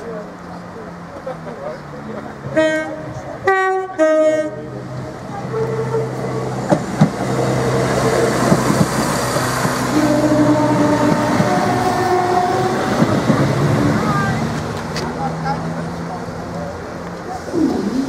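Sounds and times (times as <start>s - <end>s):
train engine and wheel rumble: 0.0s - 18.0s
two-tone train horn: 2.5s - 4.7s, 9.9s - 13.0s.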